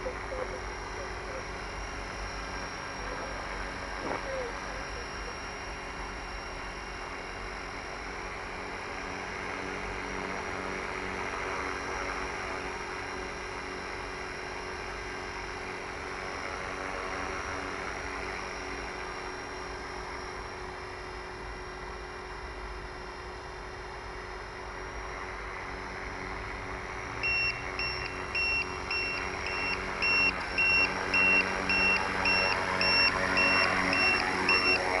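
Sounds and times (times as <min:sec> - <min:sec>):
motor whirring with whine: 0:00.0 - 0:35.0
high beeps: 0:27.2 - 0:35.0.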